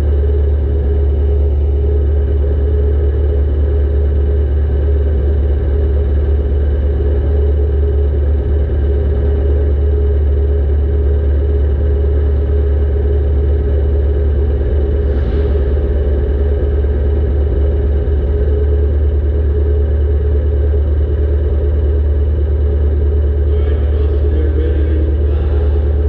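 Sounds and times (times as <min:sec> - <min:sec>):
car engine rumbling: 0:00.0 - 0:26.0.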